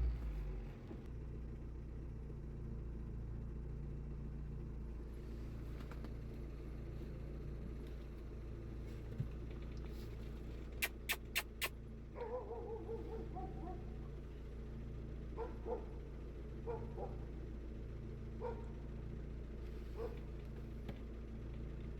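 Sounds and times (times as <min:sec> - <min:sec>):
low vehicle engine rumble: 0:00.0 - 0:21.9
dog whimpering: 0:10.8 - 0:11.7
short sharp squeaks: 0:10.8 - 0:11.8.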